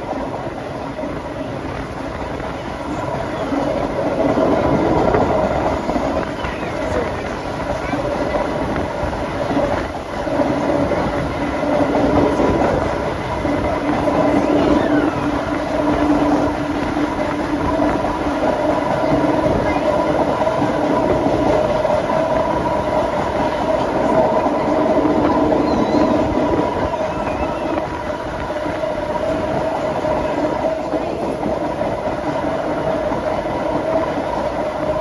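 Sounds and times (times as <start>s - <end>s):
train rail rumble: 0.0s - 35.0s.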